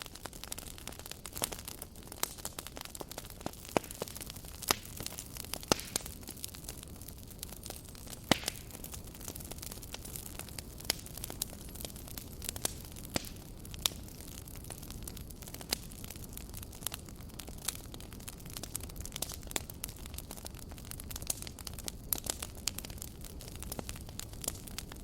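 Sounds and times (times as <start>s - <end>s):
campfire crackling and popping: 0.0s - 25.0s.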